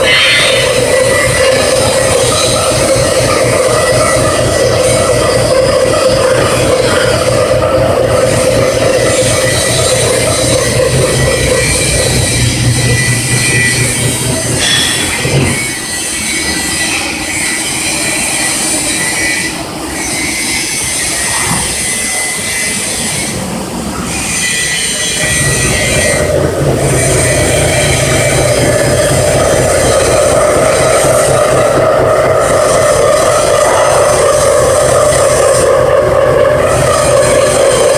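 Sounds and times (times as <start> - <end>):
low machine hum: 0.0 - 15.9, 25.2 - 37.9
milling machine cutting squeal: 0.0 - 37.9.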